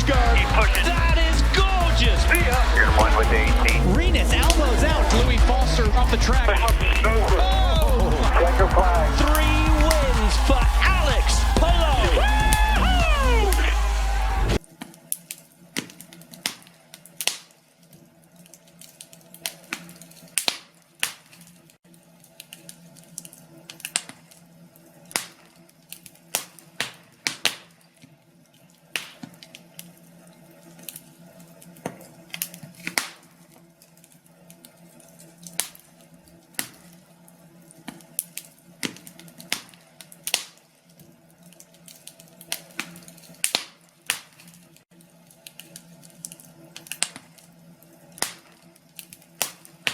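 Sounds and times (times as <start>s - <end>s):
wood fire crackling and popping: 0.0s - 17.6s, 18.4s - 21.8s, 22.5s - 24.3s, 25.1s - 27.8s, 28.9s - 29.9s, 31.7s - 33.4s, 35.4s - 35.9s, 36.5s - 37.0s, 37.8s - 47.5s, 48.1s - 49.9s
faint steady hum: 0.0s - 21.0s.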